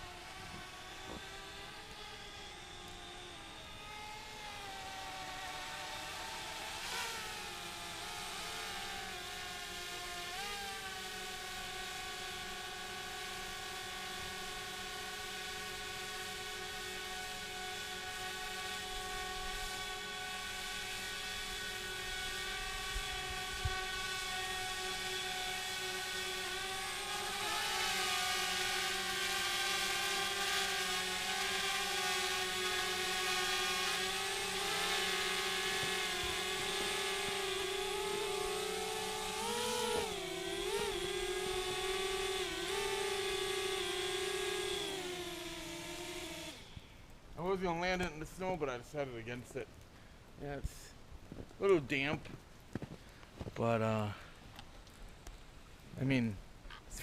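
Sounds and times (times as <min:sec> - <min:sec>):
drone propellers whining: 0:00.0 - 0:49.0.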